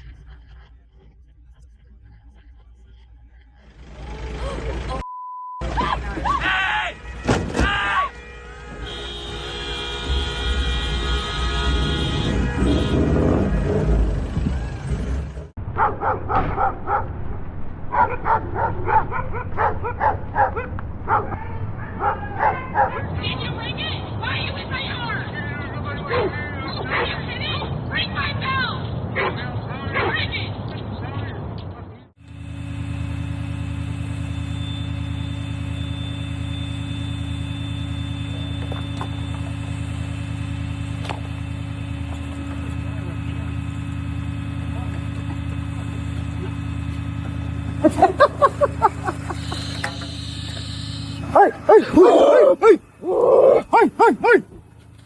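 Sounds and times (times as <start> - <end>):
low machine hum: 0.0 - 5.0, 32.2 - 55.0
dog barking: 15.8 - 17.1, 17.9 - 23.2, 26.1 - 27.3, 29.2 - 30.2, 51.2 - 52.9, 53.5 - 54.5.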